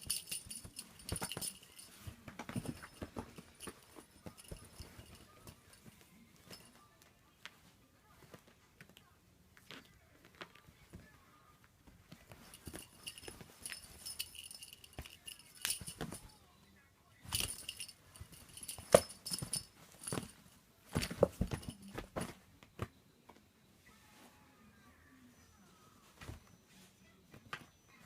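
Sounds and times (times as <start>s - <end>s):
rustles and knocks: 0.0s - 6.8s, 11.8s - 16.4s, 17.3s - 22.9s
small bell jingling: 0.0s - 6.8s, 12.2s - 16.4s, 17.2s - 22.4s.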